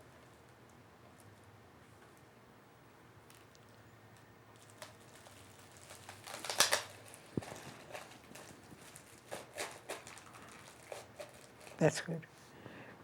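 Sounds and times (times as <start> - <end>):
plastic wrap crinkling: 3.3 - 12.2
plastic clicks and snaps: 6.2 - 8.5.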